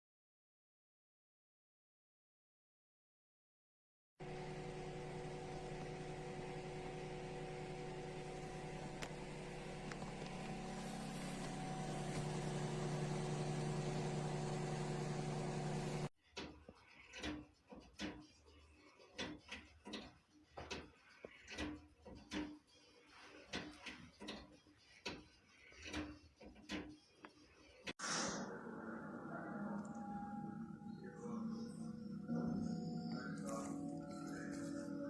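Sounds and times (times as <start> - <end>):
steady mechanical hum: 4.2 - 16.1.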